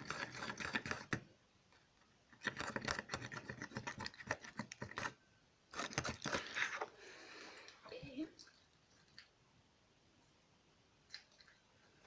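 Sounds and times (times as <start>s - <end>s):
utensil scraping a bowl: 0.0s - 1.2s, 2.3s - 7.0s.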